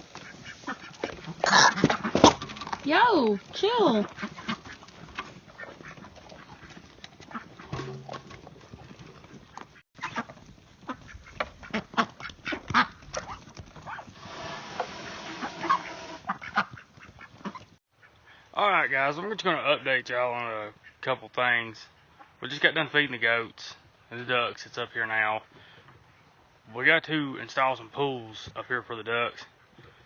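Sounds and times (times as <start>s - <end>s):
ducks quacking: 0.0s - 8.2s, 9.4s - 18.5s.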